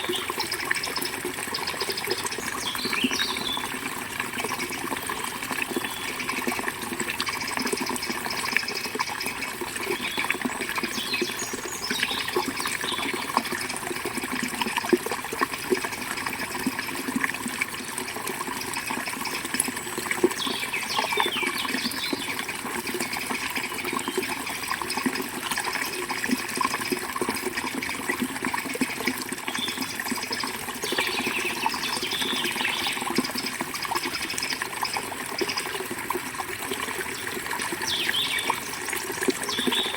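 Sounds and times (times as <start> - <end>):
birds chirping: 0.0 - 3.7, 37.8 - 38.6, 39.5 - 39.9
river water flowing over stones: 0.0 - 39.9.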